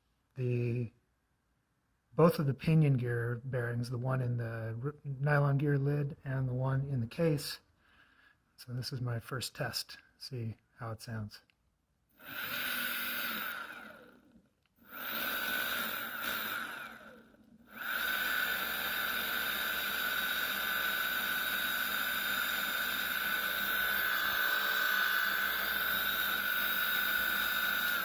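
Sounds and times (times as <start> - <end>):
electric motor whining: 12.2 - 28.0.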